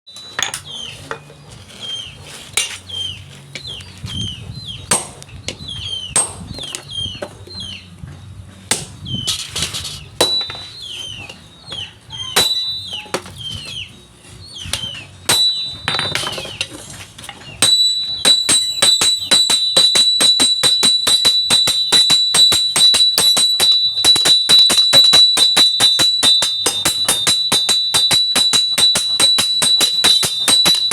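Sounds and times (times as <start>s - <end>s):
hammer striking steel on anvil: 4.9s - 5.3s, 6.2s - 6.8s, 10.2s - 10.8s, 12.3s - 13.7s, 14.7s - 16.8s, 17.5s - 30.9s.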